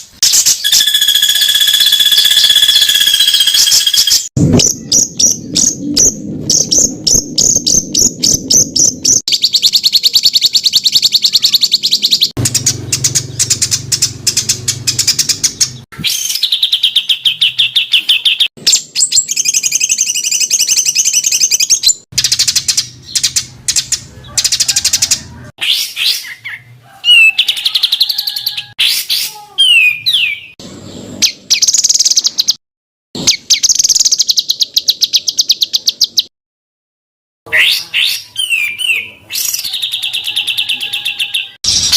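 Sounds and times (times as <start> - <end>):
sliding whistled bird notes: 0.2 - 9.7
songbirds singing: 0.2 - 32.6, 37.6 - 41.6.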